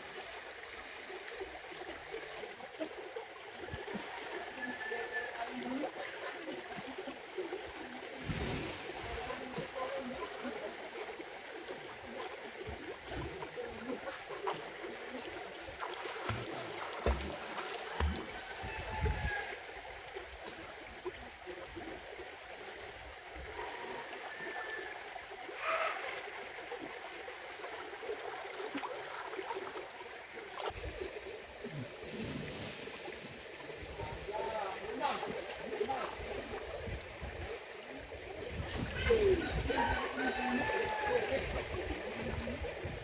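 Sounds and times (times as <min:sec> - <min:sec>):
soft thumps and splashes: 0:15.9 - 0:18.4.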